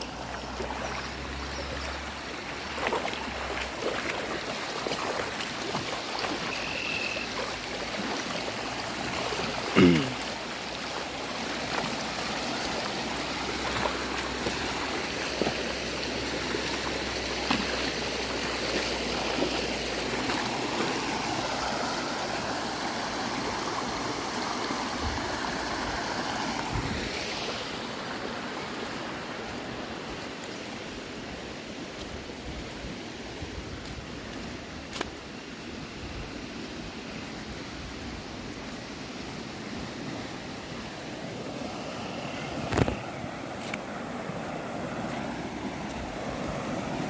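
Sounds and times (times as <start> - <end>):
river water rushing: 0.0 - 47.0.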